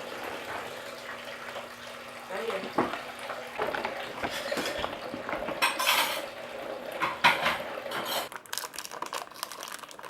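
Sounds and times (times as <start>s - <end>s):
kitchenware clinking and clattering: 2.5s - 8.3s.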